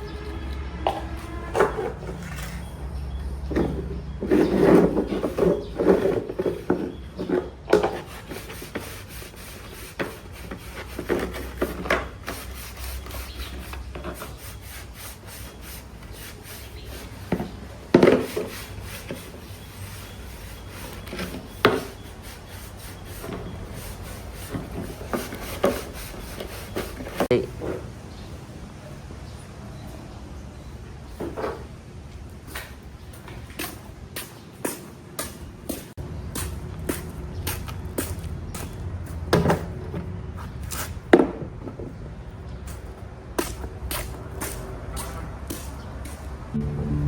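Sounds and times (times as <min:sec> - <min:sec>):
hand scraping and rubbing parts: 0:00.0 - 0:02.9, 0:03.5 - 0:27.3.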